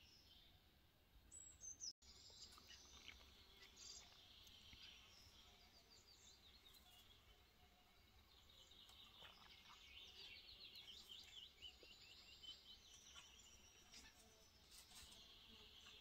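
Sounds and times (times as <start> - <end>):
songbird chirping: 0.0 - 16.0.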